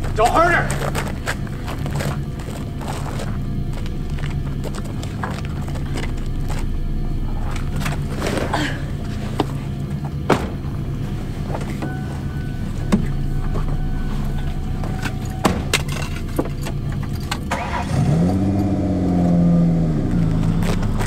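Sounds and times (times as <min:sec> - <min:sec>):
car engine running: 0:00.0 - 0:21.0
knocks and clicks in car cabin: 0:09.4 - 0:10.8, 0:11.4 - 0:13.9.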